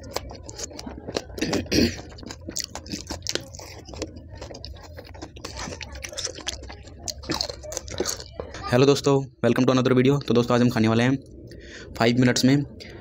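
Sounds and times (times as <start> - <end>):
crisp shells crunching: 0.0 - 8.4
wet mouth sounds: 0.0 - 8.7.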